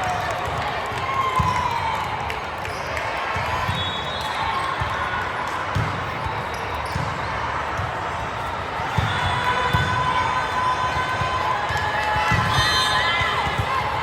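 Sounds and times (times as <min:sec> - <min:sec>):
crowd chatter: 0:00.0 - 0:14.0
balls thumping on court floor: 0:05.6 - 0:10.1, 0:11.1 - 0:14.0.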